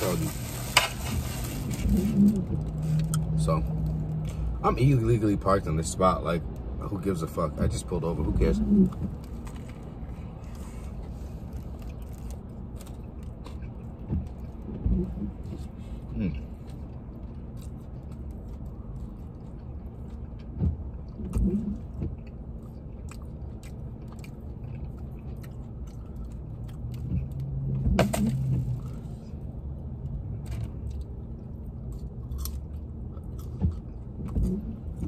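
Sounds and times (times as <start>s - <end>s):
low hum inside car: 0.0s - 35.0s
person chewing: 8.8s - 27.5s, 30.7s - 35.0s.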